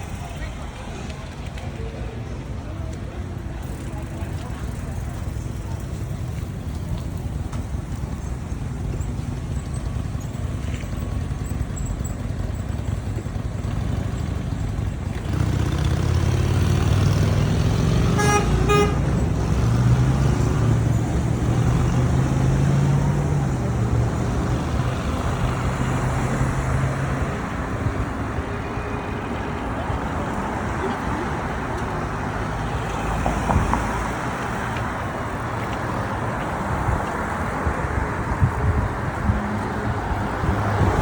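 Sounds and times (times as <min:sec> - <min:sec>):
street traffic rumble: 0:00.0 - 0:41.0
vehicle engine running close by: 0:00.0 - 0:41.0
vehicle horn toots: 0:18.0 - 0:19.3.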